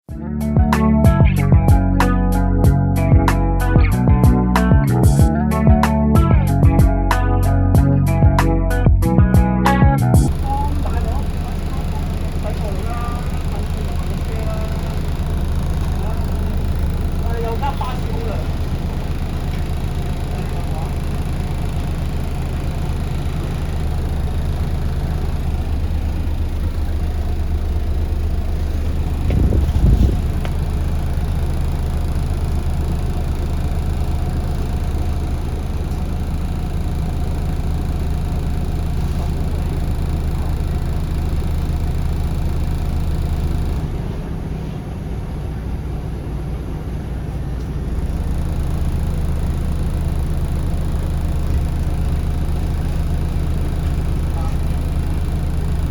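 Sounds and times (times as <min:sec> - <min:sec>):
bus engine droning: 0:00.2 - 0:55.9
loud thump: 0:29.1 - 0:30.6.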